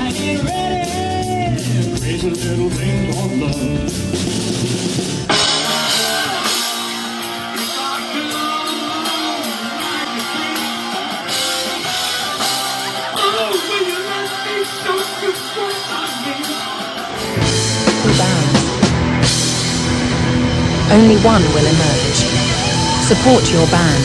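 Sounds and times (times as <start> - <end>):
person singing: 0.0 - 4.3, 5.4 - 18.7
rock band music: 0.0 - 24.0.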